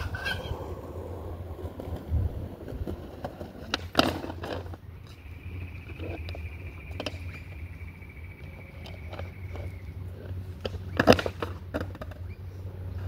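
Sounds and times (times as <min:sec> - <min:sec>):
steady low rumble: 0:00.0 - 0:11.0
skateboard knocks and clacks: 0:01.6 - 0:04.8, 0:08.8 - 0:13.0.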